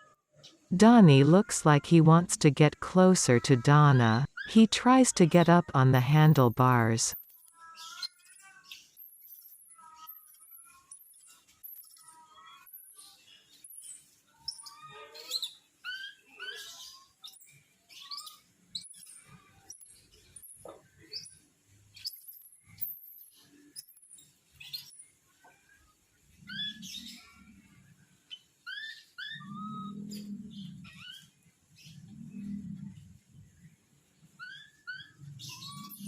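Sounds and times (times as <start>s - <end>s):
young animals chirping and squealing: 7.6s - 20.4s, 26.3s - 36.0s.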